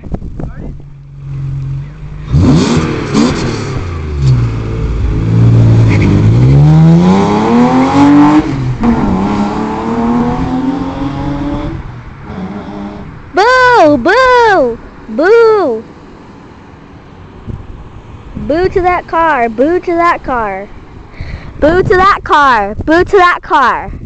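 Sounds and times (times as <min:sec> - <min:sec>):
car engine accelerating hard: 0:00.9 - 0:13.7.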